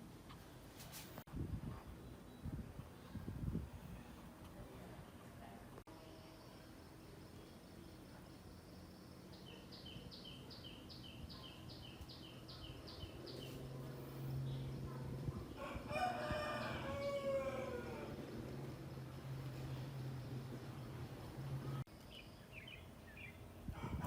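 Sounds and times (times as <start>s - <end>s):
rooster crowing: 15.6s - 18.3s, 23.7s - 24.0s.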